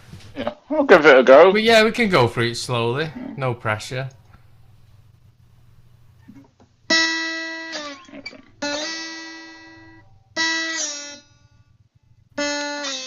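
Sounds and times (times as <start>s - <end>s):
slide guitar notes: 6.9s - 11.7s, 12.4s - 13.0s.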